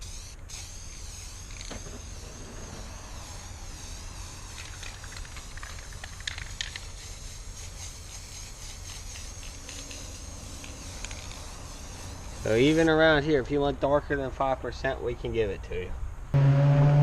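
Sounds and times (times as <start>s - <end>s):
spray paint can hissing: 0.0s - 13.2s.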